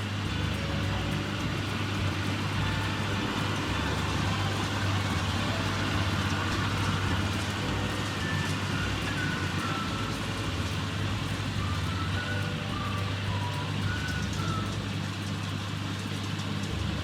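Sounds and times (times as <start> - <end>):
baler machinery rushing: 0.0 - 17.0
tractor engine running: 0.0 - 17.0.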